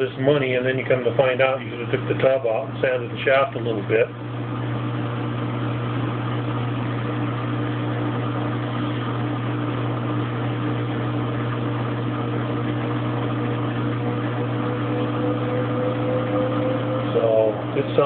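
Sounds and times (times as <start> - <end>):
washing machine motor spinning up: 0.0 - 18.0.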